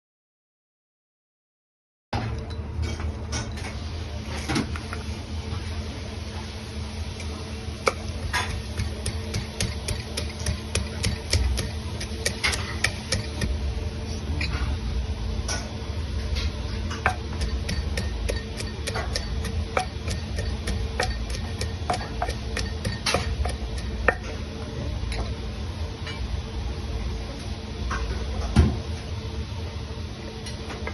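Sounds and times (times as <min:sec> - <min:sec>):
steady low hum: 0:02.2 - 0:30.9
utensils clattering against pots: 0:08.3 - 0:13.5, 0:16.4 - 0:24.3.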